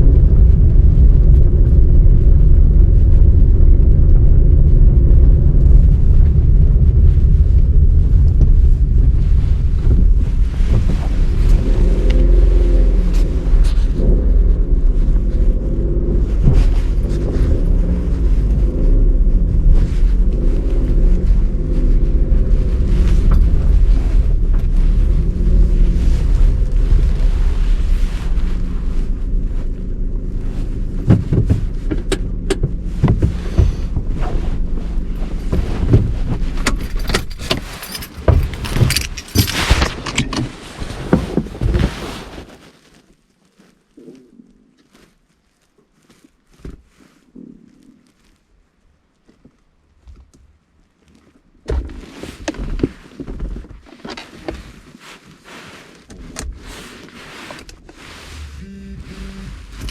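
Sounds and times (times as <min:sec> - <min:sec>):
vehicle engine running: 0:00.0 - 0:39.8, 0:57.8 - 0:59.9
clattering and knocking: 0:35.4 - 0:41.9.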